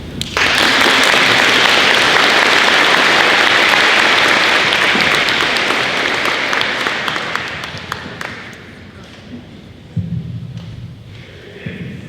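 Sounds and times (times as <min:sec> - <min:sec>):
crowd applauding: 0:00.2 - 0:08.8.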